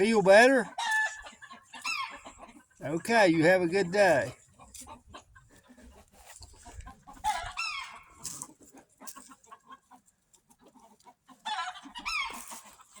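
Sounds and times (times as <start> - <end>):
rooster clucking: 0.0 - 8.2.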